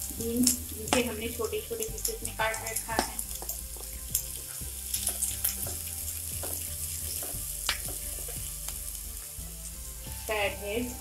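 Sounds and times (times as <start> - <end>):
vegetables sizzling in a frying pan: 0.0 - 11.0
spatula scraping and tapping pan: 1.8 - 8.9.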